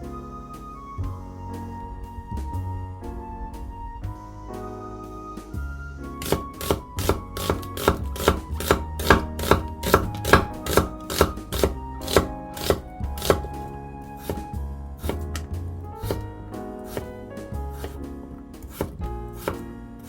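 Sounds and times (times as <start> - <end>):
background music: 0.0 - 20.0
knife chopping on cutting board: 6.2 - 13.6, 14.2 - 14.5, 15.1 - 16.3, 16.9 - 17.2, 17.8 - 18.0, 18.6 - 19.6.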